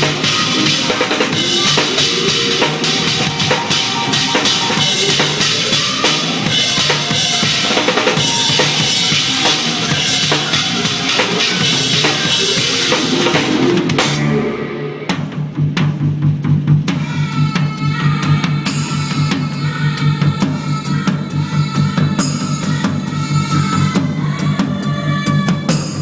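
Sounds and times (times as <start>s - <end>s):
backing music: 0.0s - 15.7s
drum kit groove: 0.0s - 26.0s.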